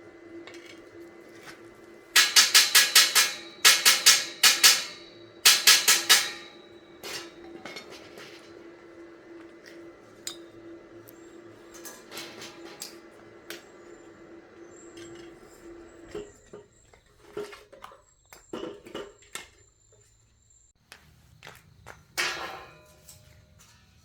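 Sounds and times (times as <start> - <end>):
steady hum: 0.0 - 16.6
metal clinking and clattering: 2.1 - 8.6, 11.7 - 13.6.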